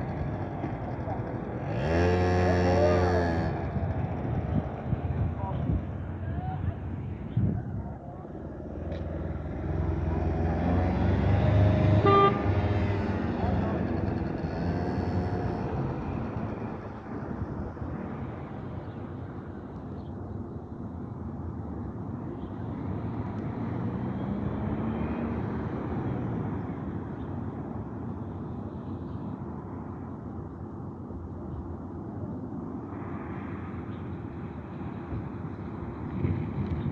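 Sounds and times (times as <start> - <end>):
motorcycle engine revving: 0.0 - 4.6, 9.4 - 17.0.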